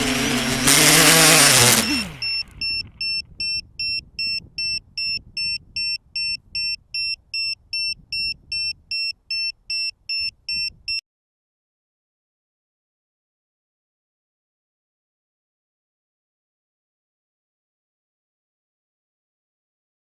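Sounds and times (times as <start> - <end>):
drone motors whining: 0.0 - 3.6
high electronic beeps: 1.0 - 11.0.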